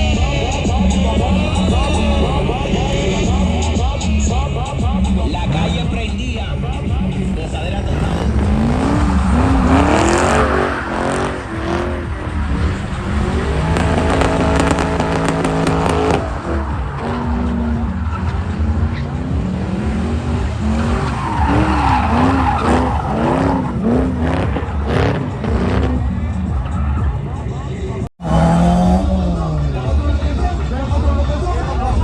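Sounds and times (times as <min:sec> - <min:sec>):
car engine revving hard: 0:05.2 - 0:26.4, 0:28.2 - 0:30.3
tyres squealing: 0:20.7 - 0:25.2.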